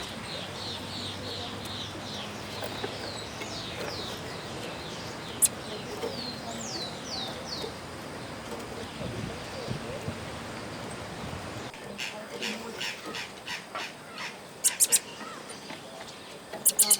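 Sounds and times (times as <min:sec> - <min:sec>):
bird singing high notes: 0:14.6 - 0:15.1, 0:16.6 - 0:16.9
sharp click: 0:14.7 - 0:15.0, 0:16.7 - 0:16.9.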